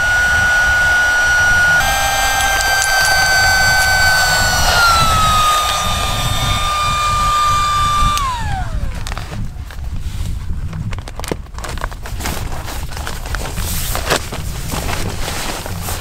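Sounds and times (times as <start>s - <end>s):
small electric motor whining: 0.0s - 9.8s.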